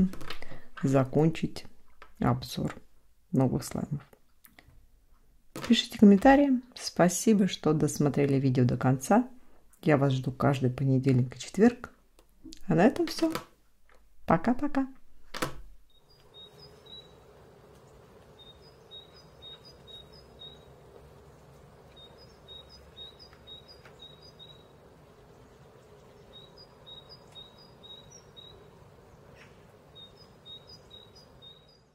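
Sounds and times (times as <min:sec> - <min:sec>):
low steady hum: 0:13.6 - 0:31.9
faint bird chirps: 0:15.9 - 0:31.9.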